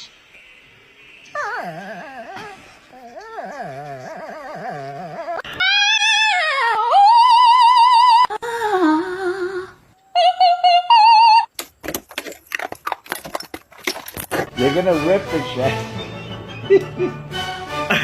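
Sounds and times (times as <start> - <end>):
irregular clicks and rustling: 11.6 - 14.5.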